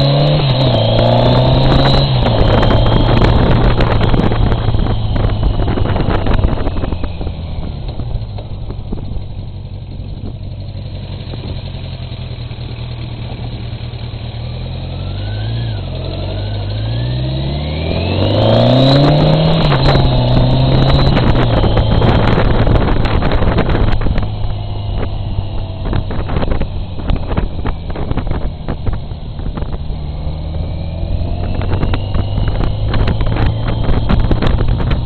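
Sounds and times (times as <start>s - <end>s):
motorcycle engine revving: 0.0s - 35.0s
wind buffeting microphone: 0.3s - 10.6s, 17.8s - 35.0s.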